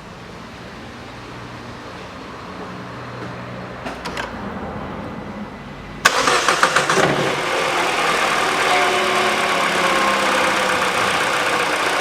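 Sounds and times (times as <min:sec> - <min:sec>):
car engine cranking and starting: 0:06.0 - 0:12.0.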